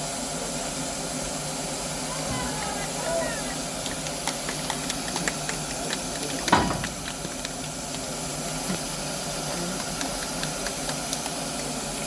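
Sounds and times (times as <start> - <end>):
steam hissing: 0.0 - 12.0
loud metal clank: 6.5 - 7.4.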